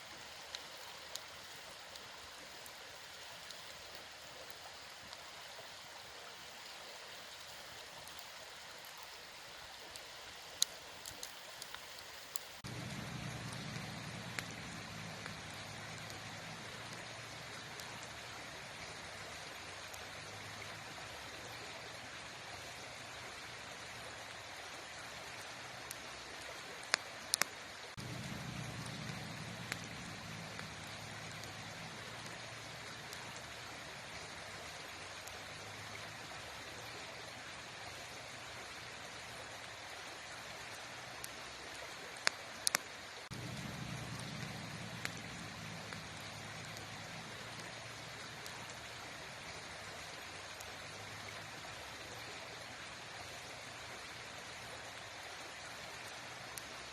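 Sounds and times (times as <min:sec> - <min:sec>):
campfire crackling: 0:00.0 - 0:56.9
fire pops: 0:09.9 - 0:18.1, 0:26.8 - 0:33.4, 0:42.2 - 0:48.8
deep low rumble: 0:12.6 - 0:16.0, 0:43.3 - 0:46.3.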